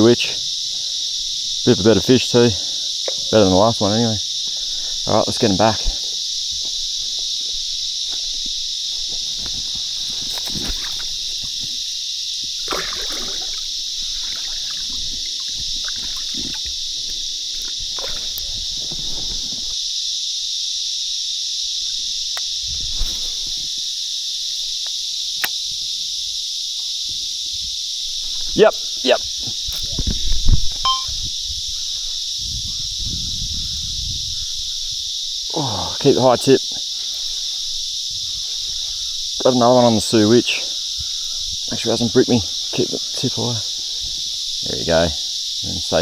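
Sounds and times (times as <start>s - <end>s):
insects buzzing: 0.0s - 46.0s
water splashes: 9.4s - 11.8s, 12.4s - 19.7s.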